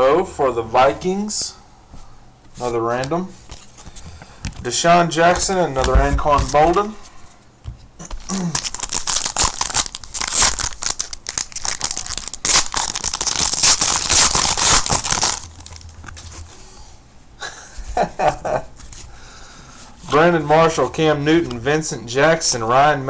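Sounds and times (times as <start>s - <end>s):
wrapper tearing and crumpling: 8.2s - 16.1s.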